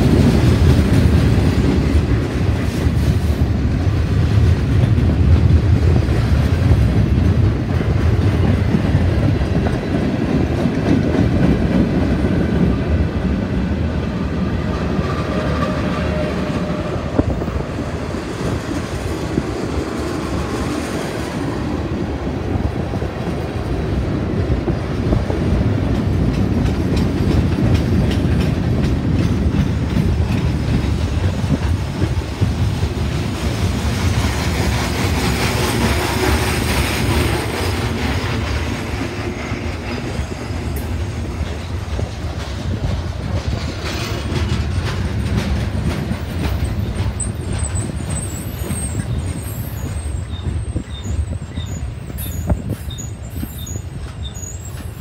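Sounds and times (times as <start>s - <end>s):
train wheels rumbling on rail: 0.0s - 55.0s
wheels clicking over rail joints: 22.8s - 55.0s.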